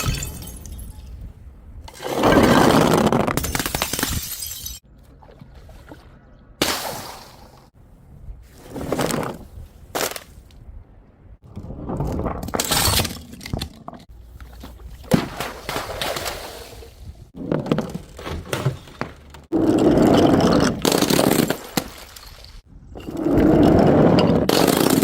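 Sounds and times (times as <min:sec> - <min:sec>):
glass bottles smashing: 0:00.0 - 0:01.1, 0:03.4 - 0:04.8.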